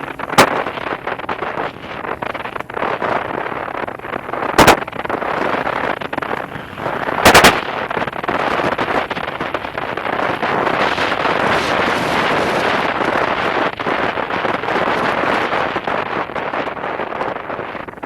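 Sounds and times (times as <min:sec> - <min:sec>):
loud sharp thumps: 0:00.0 - 0:03.3, 0:04.0 - 0:10.9
wind noise on microphone: 0:00.0 - 0:18.0.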